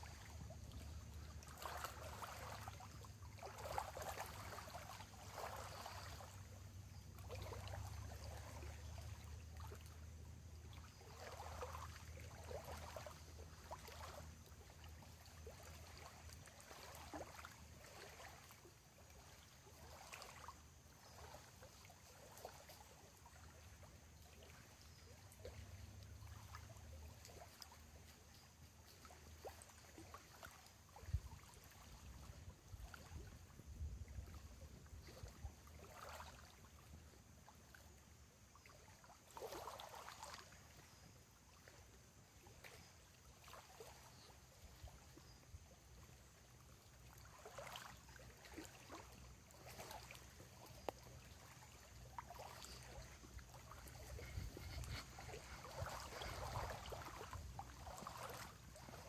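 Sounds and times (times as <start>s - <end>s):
water lapping on shore: 0.0s - 59.0s
low steady rumble: 50.9s - 59.0s.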